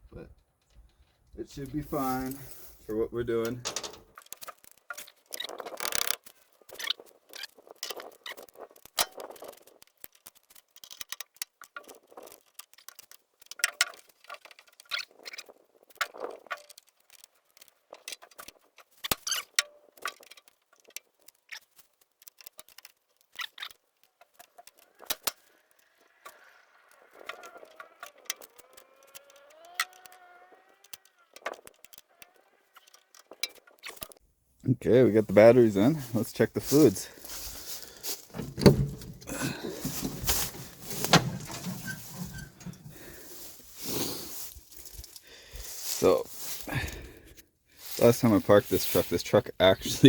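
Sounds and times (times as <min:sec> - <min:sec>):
metal tools clicking and scraping: 0:03.5 - 0:06.2, 0:36.8 - 0:43.8.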